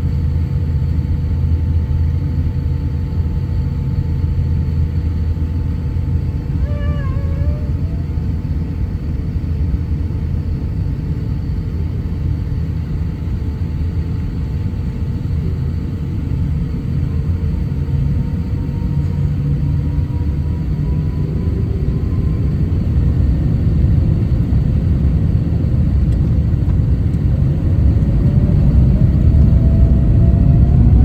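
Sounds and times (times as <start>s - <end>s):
jet engines rumbling and whining: 0.0s - 31.0s
wavering high call: 6.6s - 8.2s.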